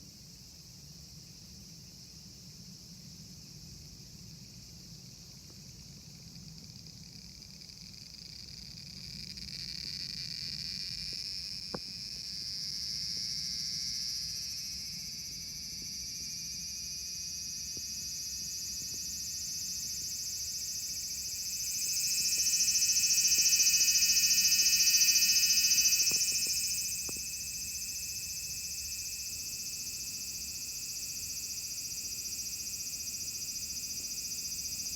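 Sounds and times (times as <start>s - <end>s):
high-pitched insect buzzing: 17.8s - 28.4s.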